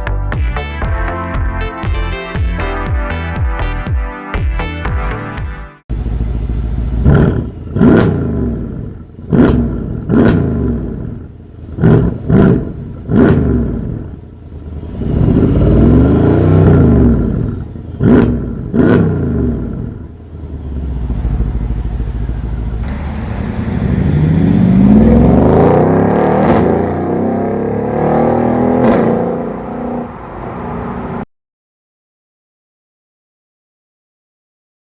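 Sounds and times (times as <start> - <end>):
car exhaust revving: 5.9 - 31.2.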